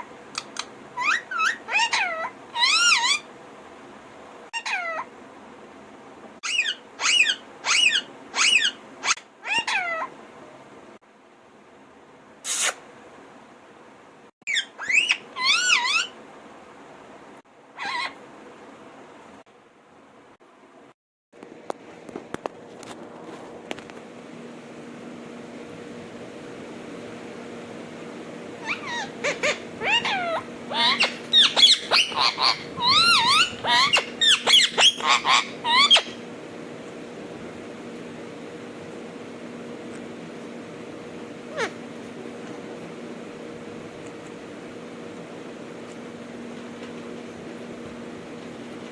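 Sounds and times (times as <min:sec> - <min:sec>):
parakeet whistled calls: 0:00.5 - 0:03.3, 0:06.4 - 0:10.0, 0:14.5 - 0:16.2, 0:17.8 - 0:18.2, 0:28.6 - 0:36.2
parakeet screech: 0:01.0 - 0:03.3, 0:04.6 - 0:05.1, 0:06.4 - 0:10.1, 0:14.5 - 0:16.1, 0:17.8 - 0:18.2, 0:28.6 - 0:36.2.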